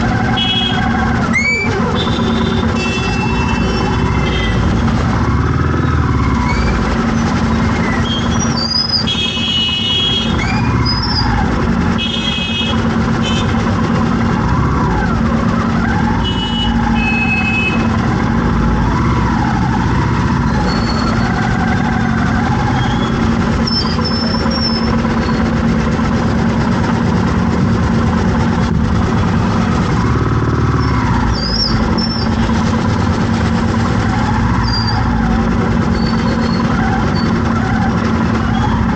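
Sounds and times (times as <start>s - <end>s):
wavering siren-like wail: 0.0s - 9.2s, 9.9s - 11.9s, 13.8s - 25.6s, 29.0s - 38.9s
traffic engines running: 0.0s - 38.9s
car horns honking: 0.2s - 1.0s, 1.8s - 5.1s, 8.0s - 10.6s, 11.9s - 13.8s, 16.1s - 18.0s.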